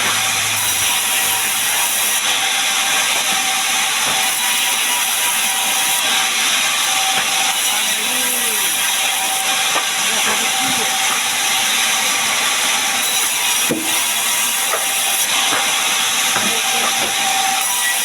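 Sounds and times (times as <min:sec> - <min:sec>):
steady saw whine: 0:00.0 - 0:18.0
saw cutting log hiss: 0:06.7 - 0:11.2.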